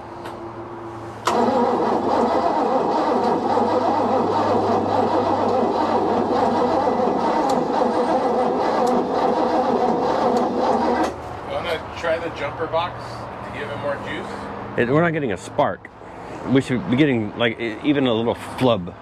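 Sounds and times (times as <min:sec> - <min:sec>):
starter cranking boat engine: 0:01.3 - 0:11.3.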